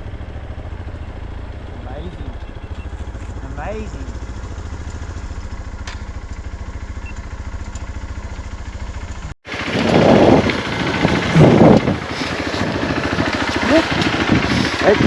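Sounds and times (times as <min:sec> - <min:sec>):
motorcycle engine running: 0:00.0 - 0:15.0
wind rushing over microphone: 0:09.5 - 0:15.0.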